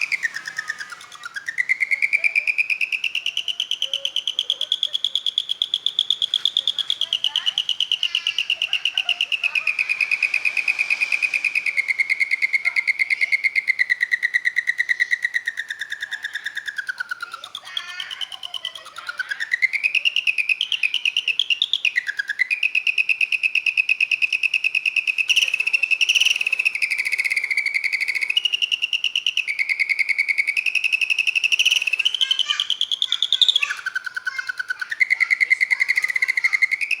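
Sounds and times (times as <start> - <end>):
songbird singing rolling trills: 0.0 - 37.0.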